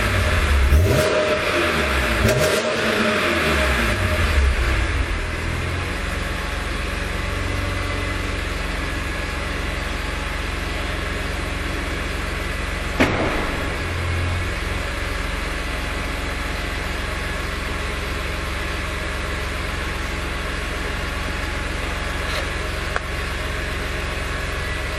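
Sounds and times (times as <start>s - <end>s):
vehicle engine idling: 3.3s - 24.9s.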